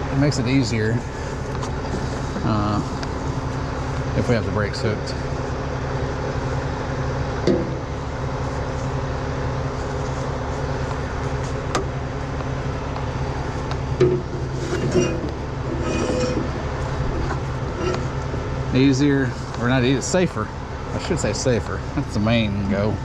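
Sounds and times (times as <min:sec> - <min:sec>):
diesel truck engine idling: 0:00.0 - 0:23.0
metal clanks and knocks: 0:07.4 - 0:07.8, 0:13.9 - 0:18.4.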